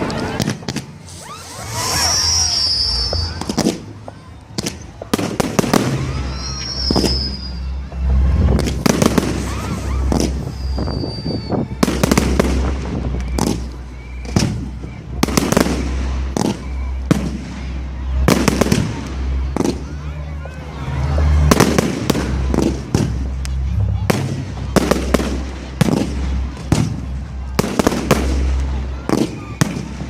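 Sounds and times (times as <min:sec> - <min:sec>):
fireworks bangs and crackling: 0:00.0 - 0:30.0
fireworks whistles: 0:00.4 - 0:20.1, 0:21.2 - 0:30.0
low rumble: 0:05.7 - 0:29.1.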